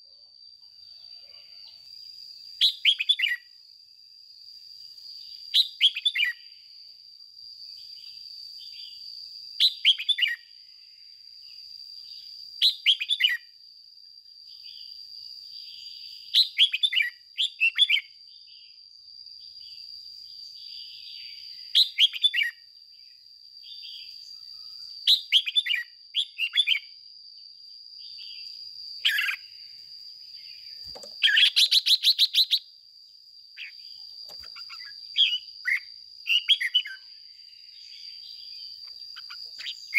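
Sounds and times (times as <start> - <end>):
bird singing sweeping phrases: 2.6 - 3.5, 5.2 - 6.5, 9.6 - 10.5, 15.6 - 18.8, 20.5 - 27.0, 28.0 - 29.6, 30.3 - 32.7, 33.6 - 39.9.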